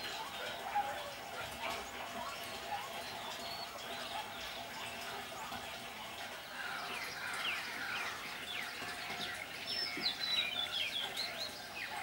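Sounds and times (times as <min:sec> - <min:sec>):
small birds chirping: 0:06.2 - 0:12.0.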